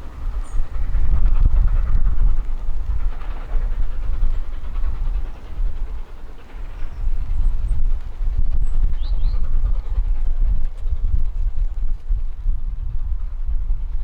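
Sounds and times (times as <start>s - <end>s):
steam train rumbling: 0.0s - 14.0s
wind buffeting microphone: 0.0s - 14.0s.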